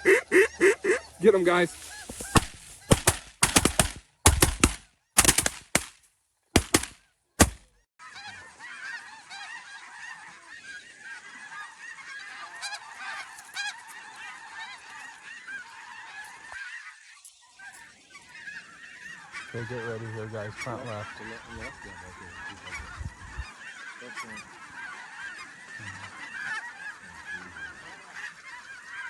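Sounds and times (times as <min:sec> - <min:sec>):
geese honking: 0:00.0 - 0:05.9, 0:06.6 - 0:29.0
shotgun blasts: 0:01.8 - 0:05.9, 0:06.6 - 0:07.7.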